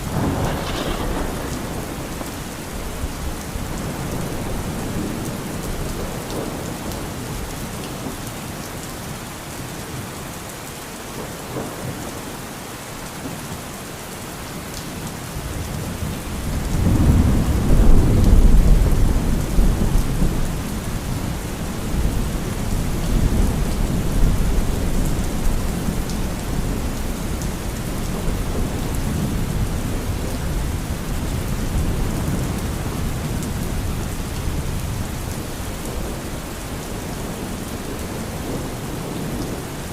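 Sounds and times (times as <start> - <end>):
rolling thunder: 0.0 - 7.4, 15.5 - 39.9
heavy rain falling: 0.0 - 39.9.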